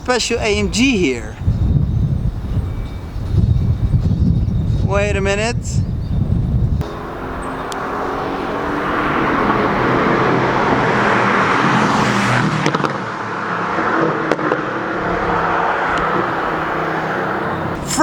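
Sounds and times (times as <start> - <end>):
car engine with deep exhaust note: 13.7 - 18.0.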